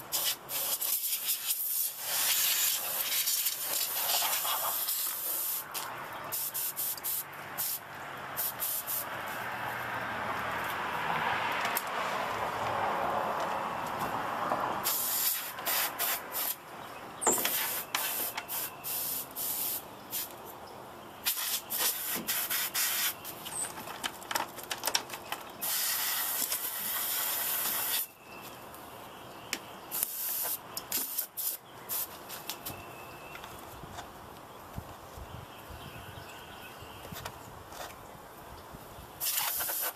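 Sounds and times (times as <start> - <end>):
compressed air hissing: 0.1 - 7.8, 8.4 - 9.2, 14.8 - 16.6, 17.3 - 20.3, 21.2 - 23.2, 25.6 - 28.1, 29.9 - 32.2, 39.2 - 39.9.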